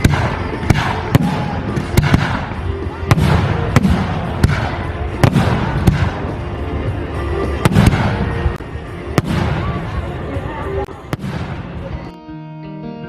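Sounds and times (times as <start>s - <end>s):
fireworks bangs: 0.0s - 6.4s, 7.6s - 8.6s.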